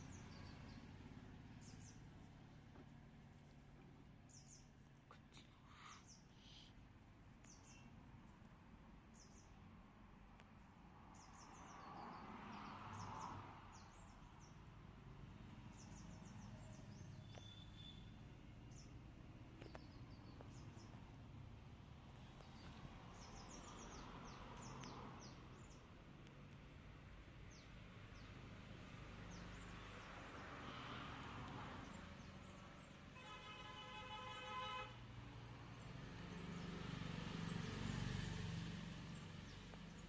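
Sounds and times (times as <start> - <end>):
faint bird chirping: 0.0 - 2.5, 3.4 - 9.7, 15.7 - 26.6.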